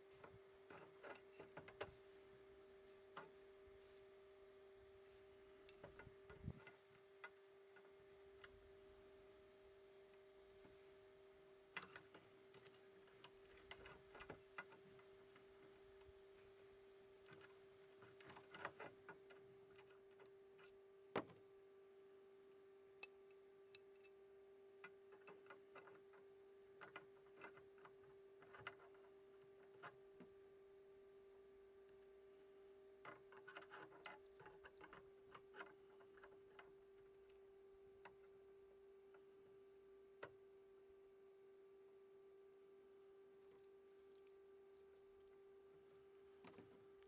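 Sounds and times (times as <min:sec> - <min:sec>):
faint steady hum: 0:00.0 - 0:47.0
faint clicks and knocks: 0:00.1 - 0:02.0, 0:03.1 - 0:04.1, 0:05.0 - 0:08.6, 0:11.7 - 0:21.5, 0:24.8 - 0:30.4, 0:31.8 - 0:38.4, 0:43.4 - 0:47.0.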